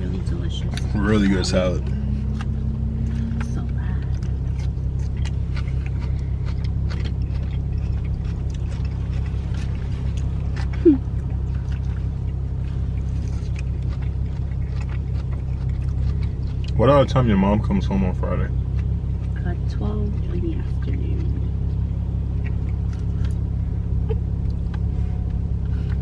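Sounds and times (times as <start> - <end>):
low rumble inside car cabin: 0.0 - 26.0.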